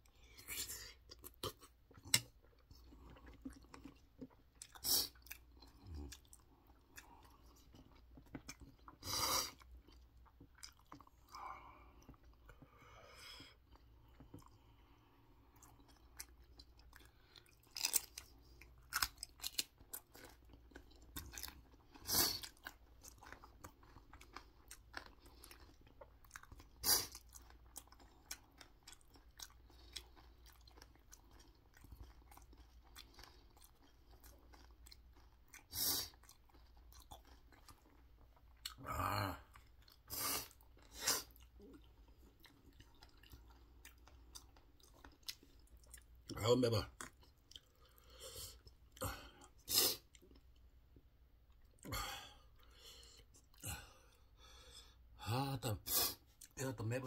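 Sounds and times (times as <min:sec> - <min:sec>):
close-up chewing: 0:00.0 - 0:55.0
crisp crunches of chili bites: 0:15.7 - 0:47.8.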